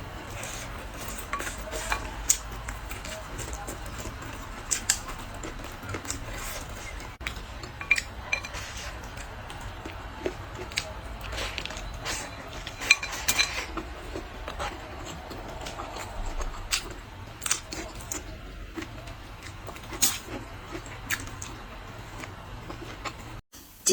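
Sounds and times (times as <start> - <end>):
utensils clinking against plates: 0.2 - 16.8.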